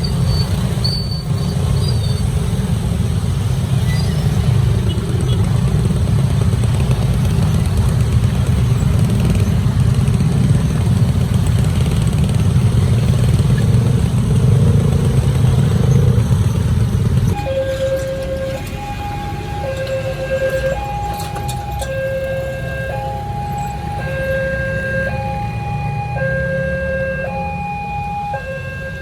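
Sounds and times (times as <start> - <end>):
motorcycles: 0.0 - 29.0
road traffic rumble: 0.0 - 29.0
two-tone siren: 17.3 - 29.0.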